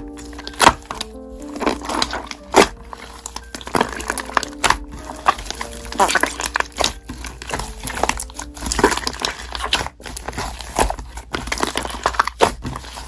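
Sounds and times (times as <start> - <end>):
slime crackling and popping: 0.0 - 13.0.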